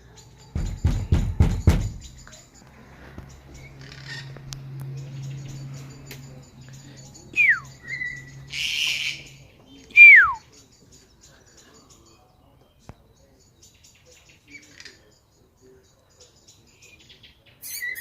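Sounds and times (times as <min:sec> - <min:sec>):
harsh grating bird call: 0:03.6 - 0:04.4, 0:07.4 - 0:10.4, 0:17.6 - 0:18.0
short held whistle: 0:07.4 - 0:07.6, 0:10.0 - 0:10.4.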